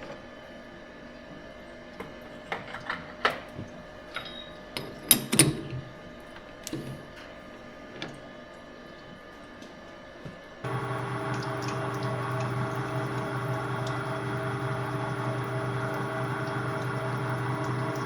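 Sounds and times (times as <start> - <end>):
metal lathe humming: 10.6 - 18.0.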